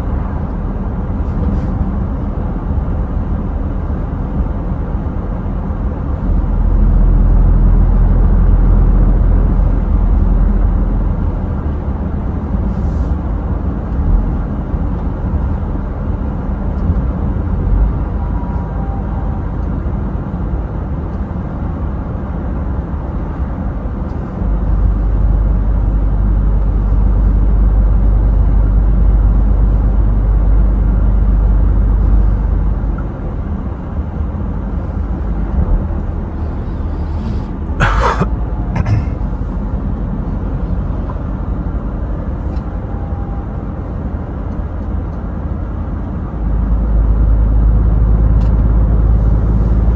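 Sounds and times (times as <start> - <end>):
road noise: 0.0 - 49.9
truck engine drone: 0.0 - 49.9
heavy low rumble: 24.4 - 41.4.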